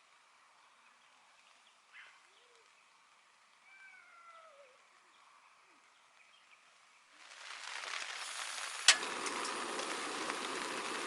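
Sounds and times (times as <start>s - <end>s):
animal calls: 3.6s - 4.9s.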